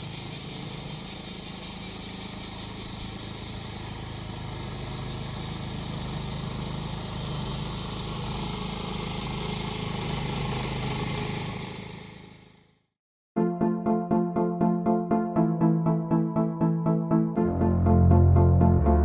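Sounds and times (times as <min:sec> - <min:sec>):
cicadas droning: 0:00.0 - 0:12.5
grass cutter engine running: 0:00.0 - 0:12.6.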